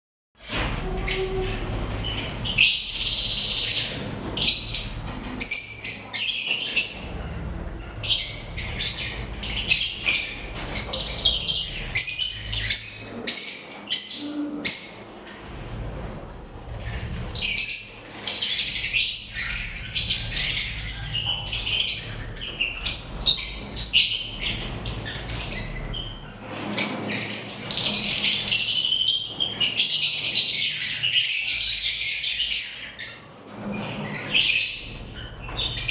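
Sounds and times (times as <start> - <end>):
lovebirds chirping and squawking: 0.4 - 35.9.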